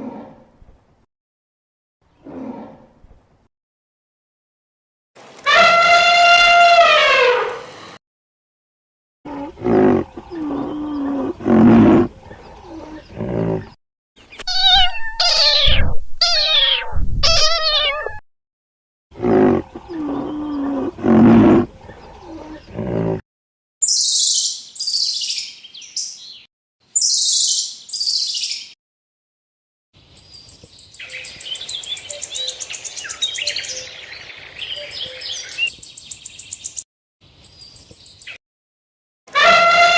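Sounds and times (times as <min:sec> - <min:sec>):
animal calls: 0:09.3 - 0:13.8, 0:19.2 - 0:23.2
birds chirping: 0:09.3 - 0:14.6, 0:19.2 - 0:23.2, 0:30.0 - 0:38.4.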